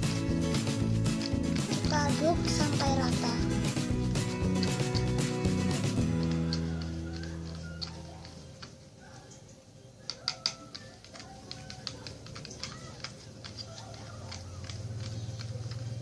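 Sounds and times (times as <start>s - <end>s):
stirrer clicking against bowl: 0.5s - 8.7s, 10.1s - 16.0s.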